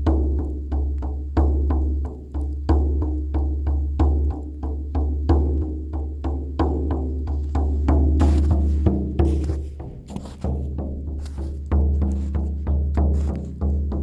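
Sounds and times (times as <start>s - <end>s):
steady drum beat: 5.0s - 14.0s.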